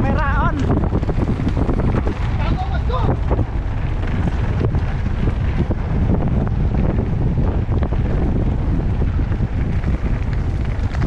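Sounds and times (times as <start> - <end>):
wind buffeting microphone: 0.0 - 11.0
bike clicks and knocks: 0.5 - 2.4.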